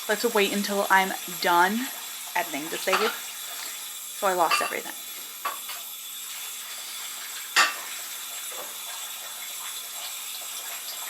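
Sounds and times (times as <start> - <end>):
dishes clinking in a sink: 2.6 - 5.9, 7.4 - 11.0.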